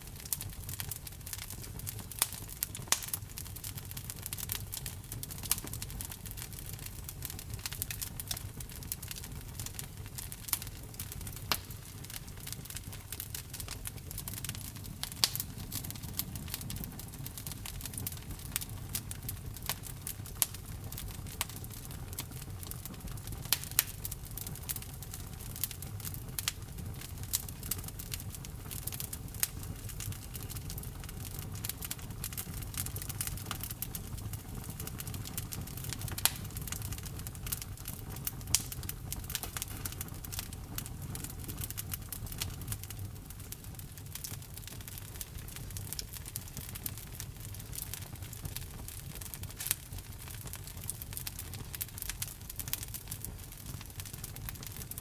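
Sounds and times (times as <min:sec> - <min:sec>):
logs crackling and popping: 0:00.0 - 0:55.0
low rumble of flames: 0:00.0 - 0:55.0.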